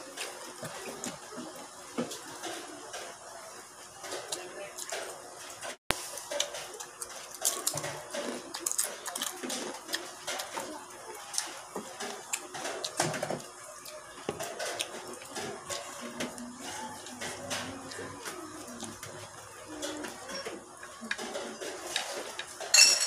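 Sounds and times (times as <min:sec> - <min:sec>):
man chewing and lip-smacking: 0:06.1 - 0:13.1.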